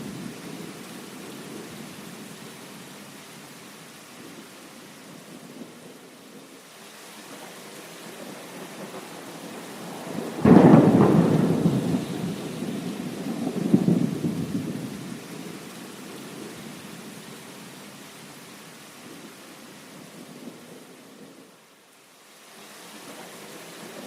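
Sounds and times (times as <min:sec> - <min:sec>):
heavy rain: 0:00.0 - 0:24.0
thunder rumbling: 0:08.1 - 0:16.5.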